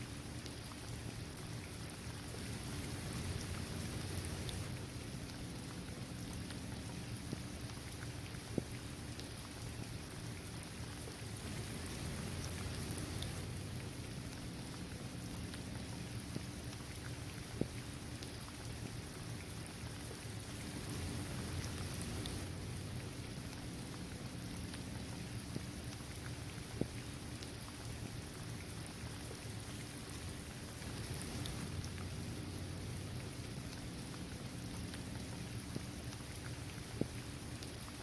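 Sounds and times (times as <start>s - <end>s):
rain falling on hard surface: 0.0s - 38.0s
raindrops ticking: 11.6s - 19.7s, 20.7s - 38.0s.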